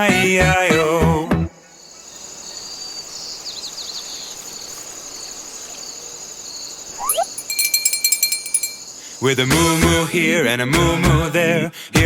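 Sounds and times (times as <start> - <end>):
crickets chirping: 1.8 - 9.4
bird chirps: 7.0 - 9.0
fast ticking with ringing tones: 7.0 - 9.0.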